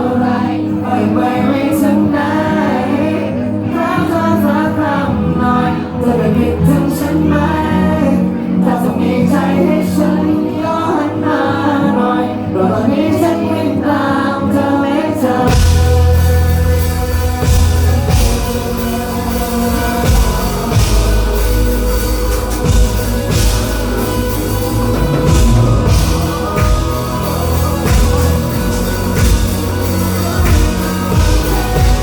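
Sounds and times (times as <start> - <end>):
voices singing a melody: 0.0 - 32.0
full band playing loudly: 14.4 - 32.0
drum kit and cymbals crashing: 15.5 - 32.0.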